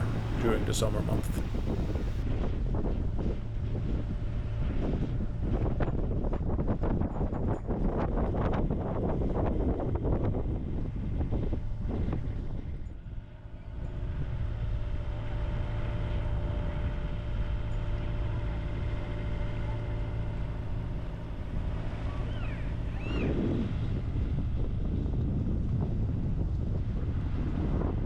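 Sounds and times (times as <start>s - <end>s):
boat engine humming: 0.0s - 2.2s
wind on microphone: 0.0s - 12.8s, 20.8s - 28.0s.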